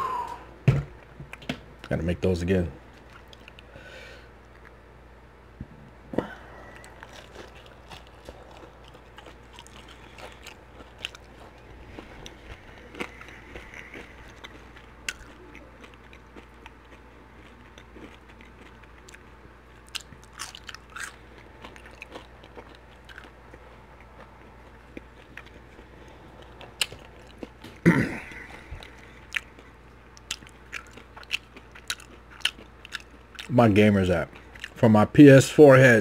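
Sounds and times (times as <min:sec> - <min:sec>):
wet chewing and mouth clicks: 0:03.0 - 0:03.7, 0:06.6 - 0:33.5, 0:34.3 - 0:34.8.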